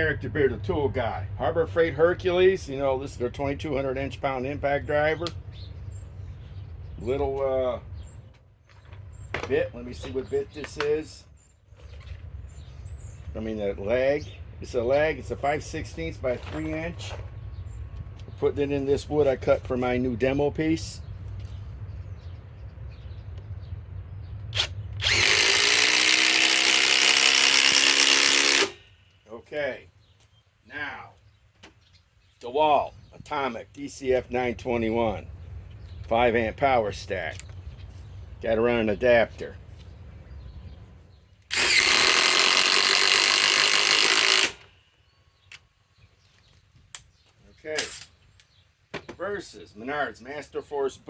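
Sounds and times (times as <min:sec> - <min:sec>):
impact driver driving screw into wood: 0:24.5 - 0:28.8, 0:41.5 - 0:44.7.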